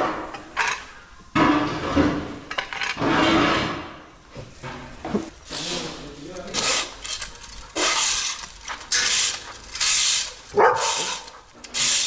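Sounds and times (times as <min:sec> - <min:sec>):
fork scraping horse bedding: 0:05.5 - 0:12.0.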